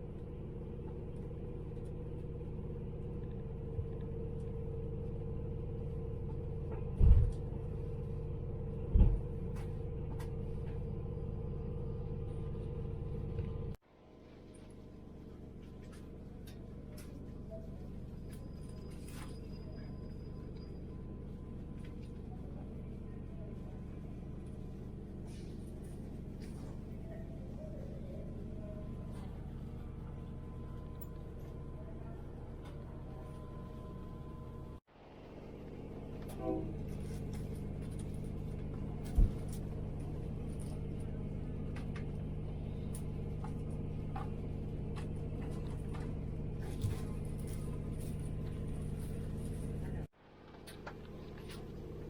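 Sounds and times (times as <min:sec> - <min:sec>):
train hum and rumble: 0:00.0 - 0:52.0
train rumbling: 0:35.4 - 0:52.0.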